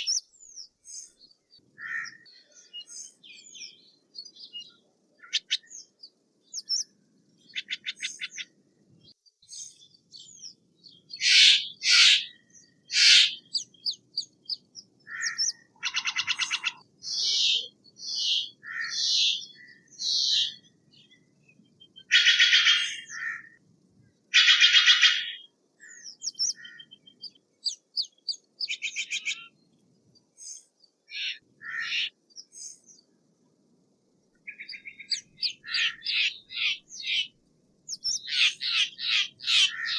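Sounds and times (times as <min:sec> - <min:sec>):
jay harsh raspy calls: 0:11.2 - 0:12.3, 0:12.9 - 0:13.5, 0:15.1 - 0:16.8, 0:38.2 - 0:39.9.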